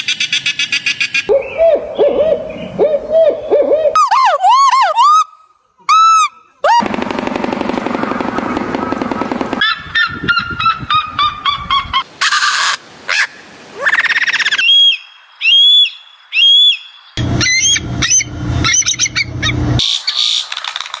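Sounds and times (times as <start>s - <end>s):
harsh bird calls: 0.0s - 4.4s, 9.6s - 20.5s
whistled bird calls: 13.9s - 20.4s.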